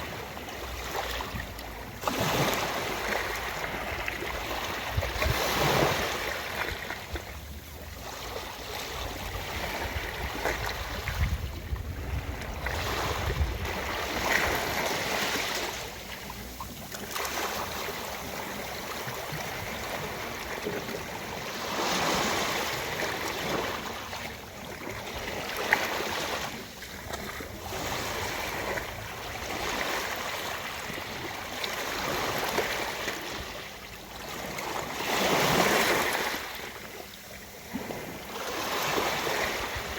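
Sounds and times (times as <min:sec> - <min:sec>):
ocean surf on beach: 0:08.1 - 0:26.7.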